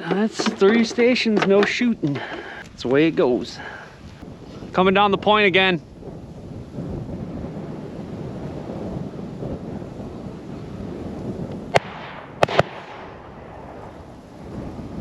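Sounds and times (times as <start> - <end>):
wind on microphone: 1.8 - 15.0
shotgun shots: 11.7 - 13.8.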